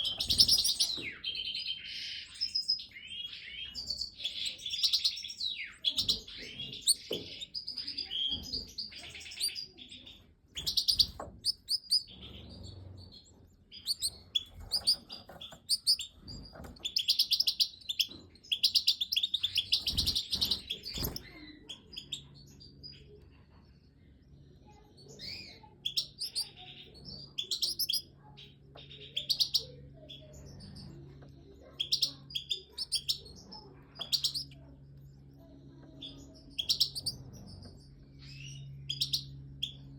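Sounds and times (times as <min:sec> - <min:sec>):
goldfinches twittering: 0:00.0 - 0:02.2.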